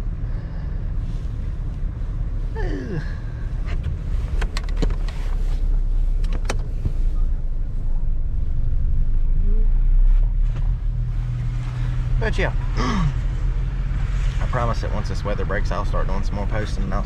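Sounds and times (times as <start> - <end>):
vehicle low rumble: 0.0 - 17.0.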